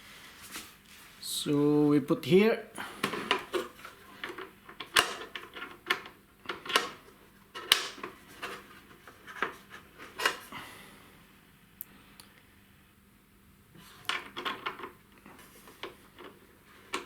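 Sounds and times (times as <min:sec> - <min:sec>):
small parts clicking and knocking: 0:03.0 - 0:10.5, 0:14.0 - 0:17.0.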